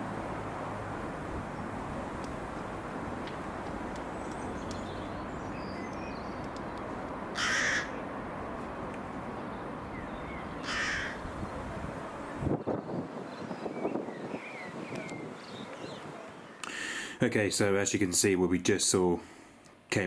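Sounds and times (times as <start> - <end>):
low background noise: 0.0 - 12.6
bird harsh calls: 7.4 - 8.0, 9.9 - 11.3.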